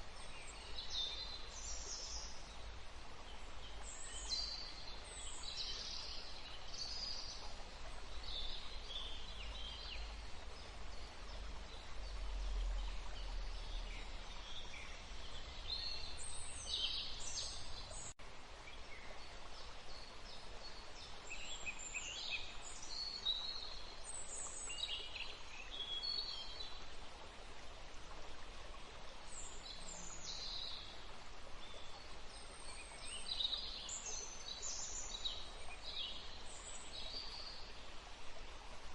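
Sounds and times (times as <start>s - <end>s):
songbirds chirping and trilling: 0.0s - 26.8s
steady background hiss: 0.0s - 38.9s.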